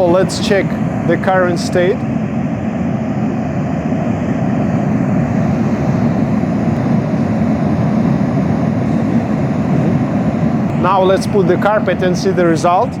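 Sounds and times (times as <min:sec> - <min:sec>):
muffled white noise hiss: 0:00.0 - 0:02.0, 0:06.4 - 0:13.0.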